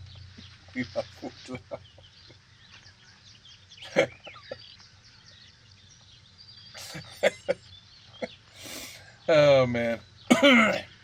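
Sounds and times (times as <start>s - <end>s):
birds twittering faintly: 0.0s - 11.0s.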